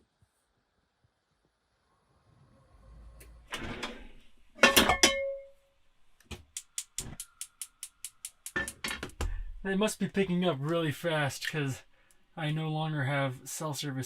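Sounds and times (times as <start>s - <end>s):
fast sharp clicks: 6.2s - 8.9s.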